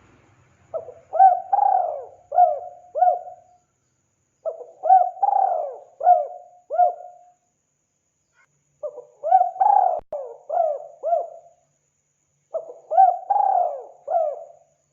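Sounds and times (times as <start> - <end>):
dove cooing: 0.7 - 3.5, 4.4 - 7.2, 8.8 - 11.5, 12.5 - 14.6.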